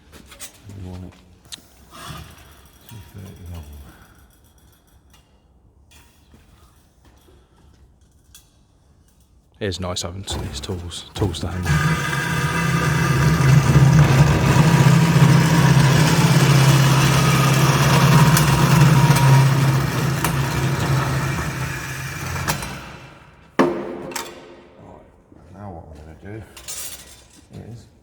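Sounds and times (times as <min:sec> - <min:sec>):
electric saw cutting metal: 0:10.3 - 0:24.3
sharp metallic knock: 0:23.6 - 0:24.8.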